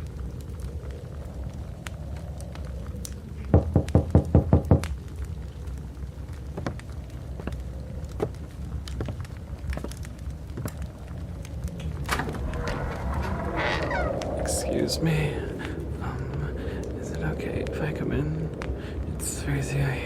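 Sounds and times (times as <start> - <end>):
blizzard wind rumble: 0.0 - 20.0
knocking on a door: 3.5 - 4.8.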